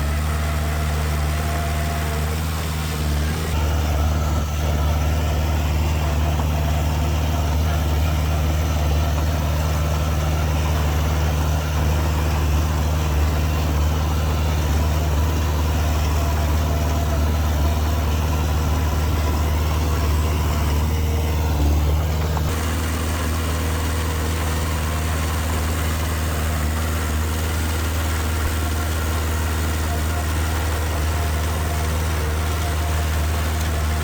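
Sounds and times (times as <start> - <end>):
heavy diesel engine running: 0.0 - 34.0.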